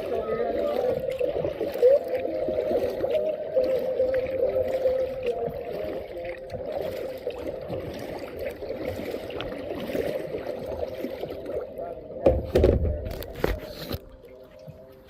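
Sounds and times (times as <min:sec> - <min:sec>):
water splashing from paddling: 0:00.0 - 0:15.0
paddle knocking on kayak hull: 0:12.2 - 0:13.4.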